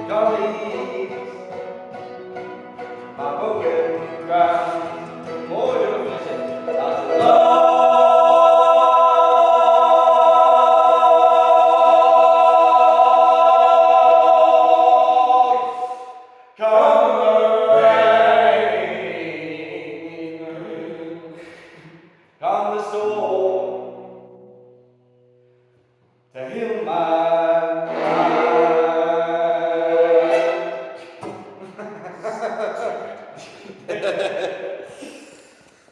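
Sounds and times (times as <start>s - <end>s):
person singing: 0.0s - 21.5s, 26.4s - 31.2s.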